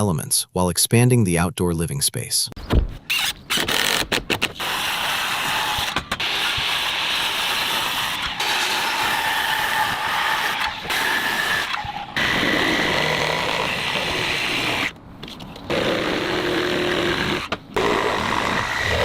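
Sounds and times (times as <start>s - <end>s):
power tool running on wood: 4.6s - 14.9s, 15.7s - 19.0s.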